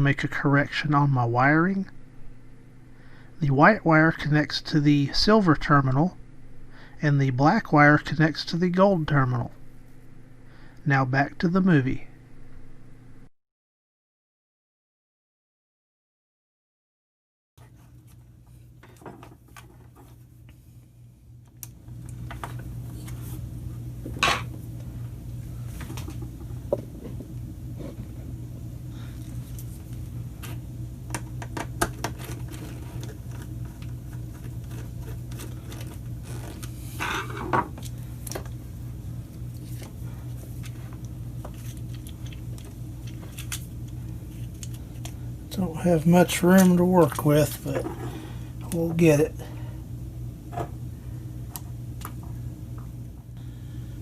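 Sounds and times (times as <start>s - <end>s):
steady low hum: 0.0s - 13.3s, 17.6s - 54.0s.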